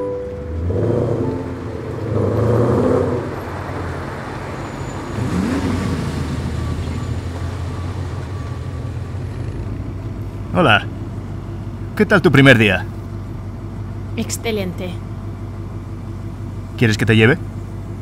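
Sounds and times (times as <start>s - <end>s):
car engine idling: 0.0s - 18.0s
car engine revving: 0.3s - 14.4s.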